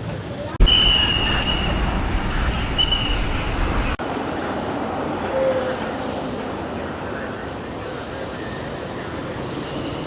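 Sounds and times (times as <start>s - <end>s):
road traffic hum: 0.6s - 5.2s.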